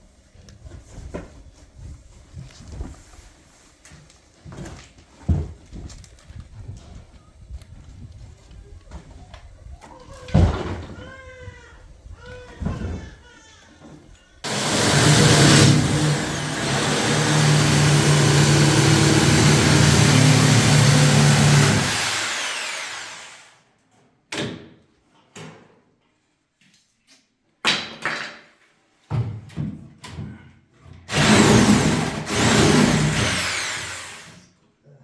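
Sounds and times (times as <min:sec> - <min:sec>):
sewing machine motor running: 0:14.5 - 0:23.3, 0:31.1 - 0:34.3.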